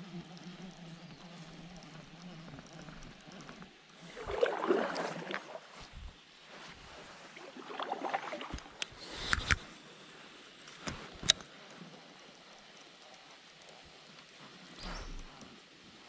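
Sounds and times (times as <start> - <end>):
water sloshing around kayak: 1.6 - 9.4.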